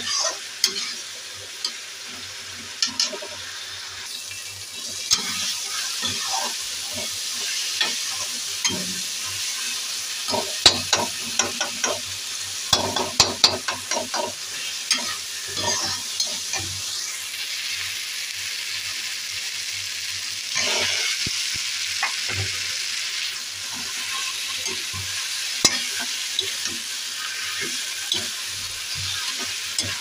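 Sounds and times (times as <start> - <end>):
vegetables sizzling in a wok: 0.0 - 30.0
spatula scraping and knocking pan: 10.3 - 12.1, 12.7 - 16.7, 23.7 - 30.0.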